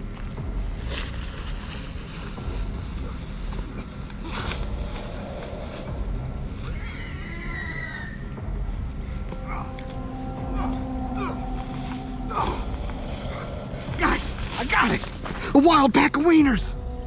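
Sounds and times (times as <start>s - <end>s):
wavering high-pitched call: 9.3s - 14.6s.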